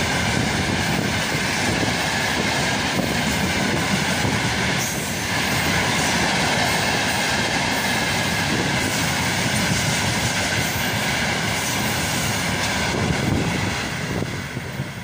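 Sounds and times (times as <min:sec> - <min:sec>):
steel wheels rumbling on rail: 0:00.0 - 0:15.0.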